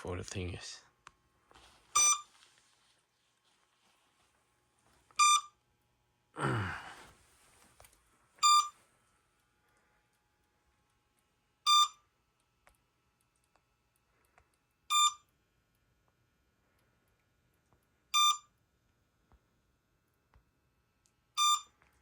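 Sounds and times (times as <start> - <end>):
short electronic beeps: 2.0 - 2.3, 5.2 - 5.6, 8.4 - 8.7, 11.7 - 12.0, 14.9 - 15.2, 18.2 - 18.5, 21.4 - 21.7.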